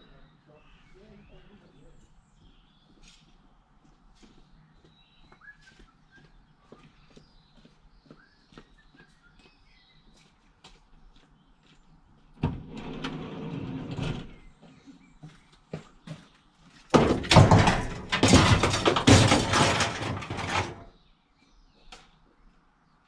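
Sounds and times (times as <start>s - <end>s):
scraping and rattling: 12.4s - 14.5s, 16.9s - 20.9s
knocks: 16.9s - 20.8s.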